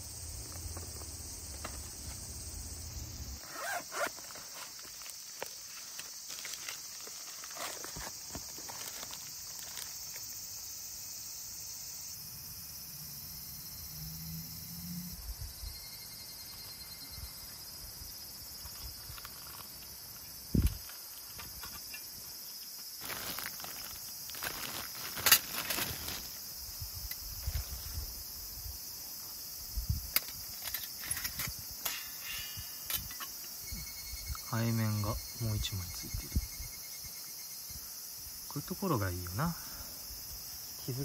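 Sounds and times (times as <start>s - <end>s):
insects chirring: 0.0s - 41.0s.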